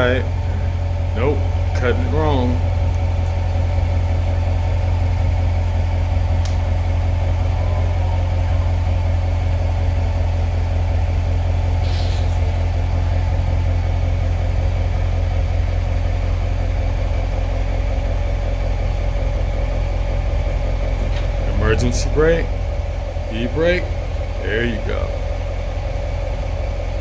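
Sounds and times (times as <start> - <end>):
car engine idling with low rumble: 0.0 - 27.0
short hiss: 11.8 - 12.4.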